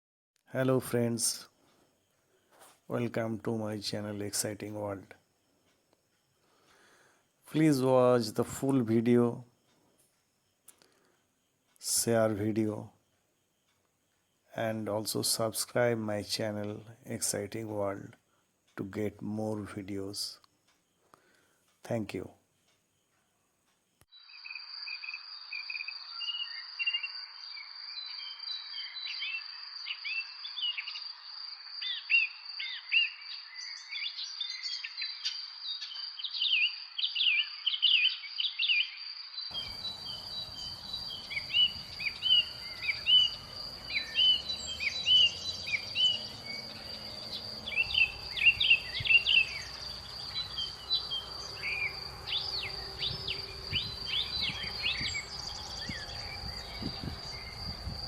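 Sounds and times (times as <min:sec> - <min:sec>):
small birds chirping: 0:00.7 - 0:58.0
high-pitched insect drone: 0:39.5 - 0:58.0.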